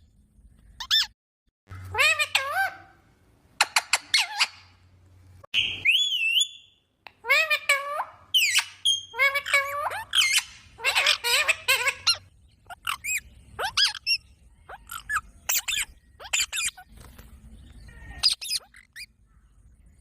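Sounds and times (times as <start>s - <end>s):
parrot squawking: 1.7s - 3.0s, 3.6s - 4.7s, 7.2s - 16.8s, 18.0s - 19.1s.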